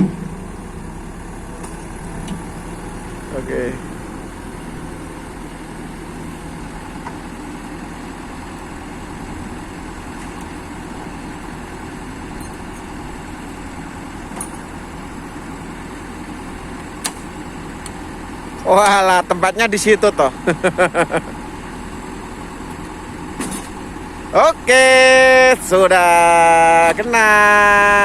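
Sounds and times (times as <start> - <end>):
heavy engine idling: 0.0 - 28.0.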